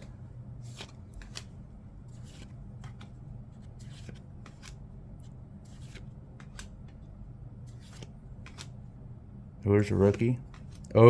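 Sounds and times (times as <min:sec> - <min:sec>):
steady low hum: 0:00.0 - 0:11.0
trading cards flipped by hand: 0:00.6 - 0:01.6, 0:02.2 - 0:04.8, 0:05.7 - 0:07.0, 0:07.7 - 0:08.8, 0:10.0 - 0:10.9.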